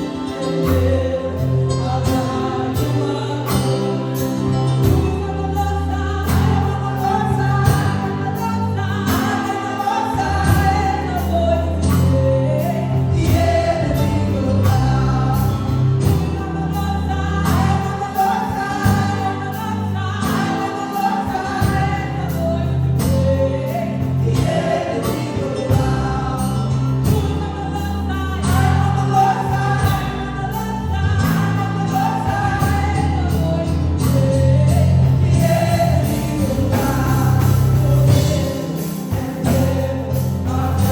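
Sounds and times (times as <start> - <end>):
group singing gospel music: 0.0 - 40.9
bass and steady beat: 0.7 - 9.5, 10.2 - 20.6, 21.3 - 40.9.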